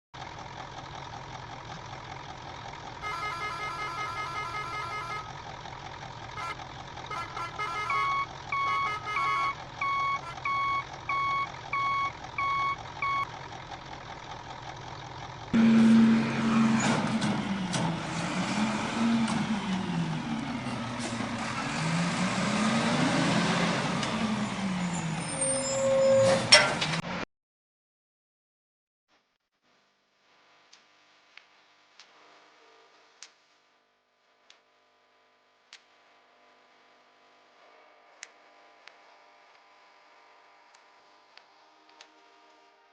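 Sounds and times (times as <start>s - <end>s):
truck engine hum: 0.2s - 27.2s
reversing beeps: 7.8s - 13.3s.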